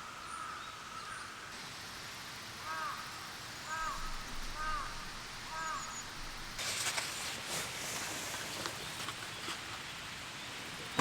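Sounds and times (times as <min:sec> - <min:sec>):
bird calling: 0:02.6 - 0:06.6.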